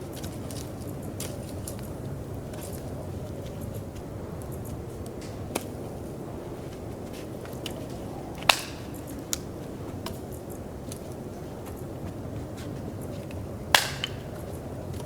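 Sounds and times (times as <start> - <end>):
sharp snaps or knocks: 8.4 - 9.5, 13.8 - 14.4.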